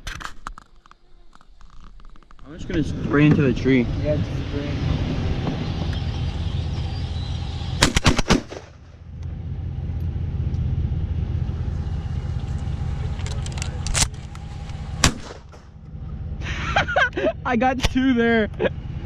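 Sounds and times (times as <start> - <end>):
steady low rumble: 1.9 - 19.0
gunshots: 7.8 - 9.0, 15.0 - 15.7.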